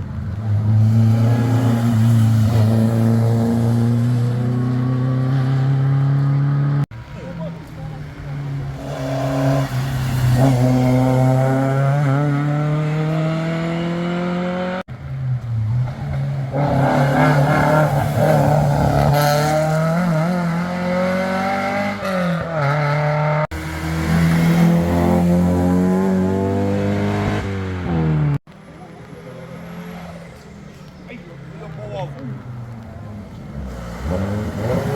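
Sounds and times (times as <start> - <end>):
rally car engines revving: 0.0 - 34.9.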